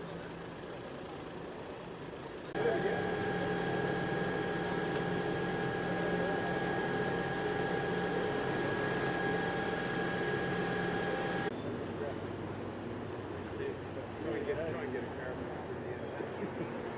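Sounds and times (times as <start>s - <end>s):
machine hum with whine: 2.5s - 11.5s.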